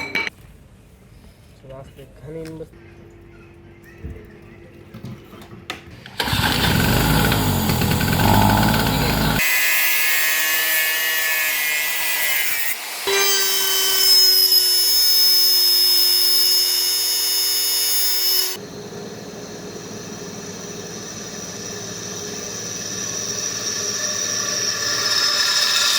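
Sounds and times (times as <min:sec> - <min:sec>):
machine tool cutting: 0:06.2 - 0:18.6, 0:21.6 - 0:25.9
high-pitched whine: 0:18.6 - 0:25.9.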